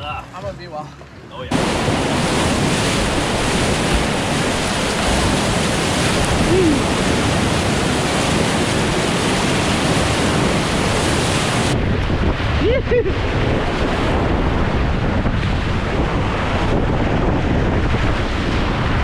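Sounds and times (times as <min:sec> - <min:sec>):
river whitewater rushing: 0:01.5 - 0:11.8.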